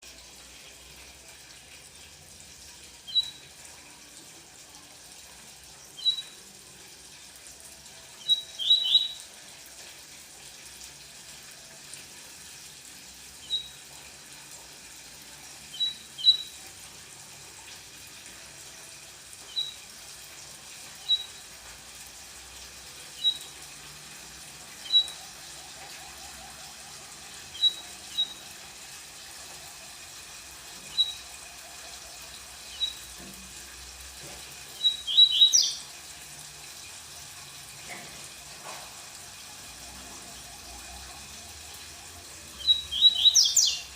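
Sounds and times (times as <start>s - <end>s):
songbird high chirps: 6.0s - 6.4s, 8.2s - 9.2s, 15.7s - 16.6s, 19.5s - 19.8s, 21.0s - 21.4s, 34.8s - 35.8s, 42.6s - 43.9s.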